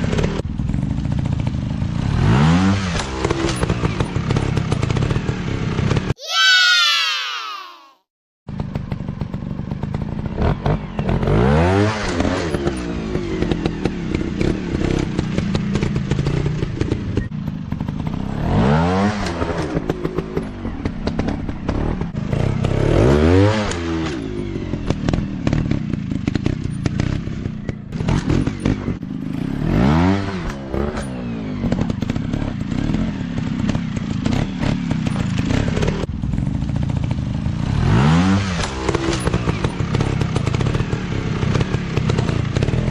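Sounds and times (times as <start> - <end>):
dirt bike engines revving: 9.7 - 42.9.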